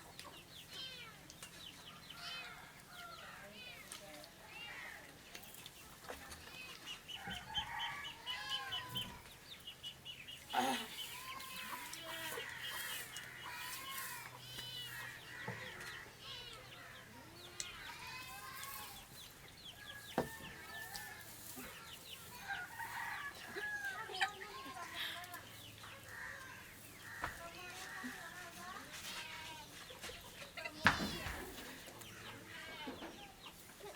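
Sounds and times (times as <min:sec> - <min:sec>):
chickens clucking: 0:05.4 - 0:29.0.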